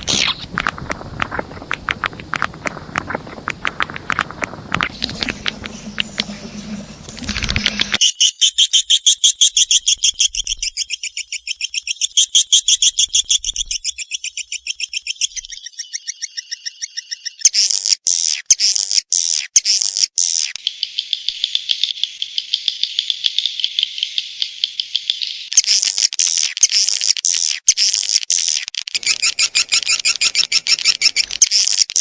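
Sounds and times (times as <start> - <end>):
swiftlet twittering chirps: 0.0 - 8.5, 29.0 - 31.8.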